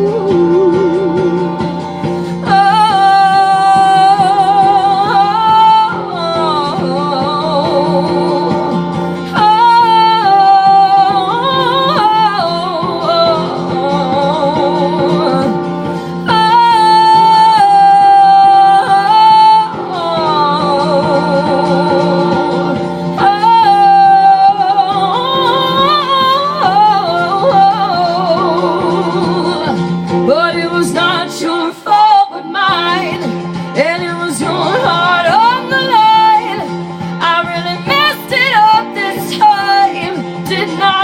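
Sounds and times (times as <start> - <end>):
held musical accompaniment: 0.0 - 41.0
wordless singing: 33.8 - 41.0.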